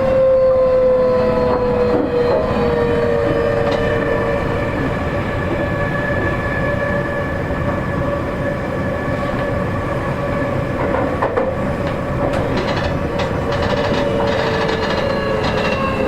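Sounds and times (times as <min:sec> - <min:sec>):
rail-joint clicks and rattles: 0:10.8 - 0:16.0
rumbling wheel noise: 0:11.2 - 0:16.0
train motor whine: 0:12.4 - 0:16.0.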